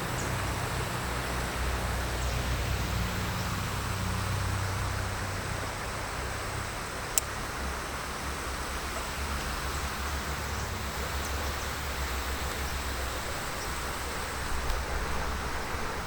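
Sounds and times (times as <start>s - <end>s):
faint clicks: 14.5s - 14.9s.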